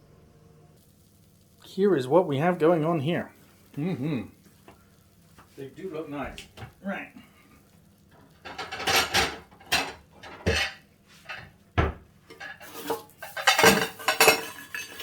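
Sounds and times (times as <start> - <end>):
cutlery and dishes clattering: 8.4 - 15.0.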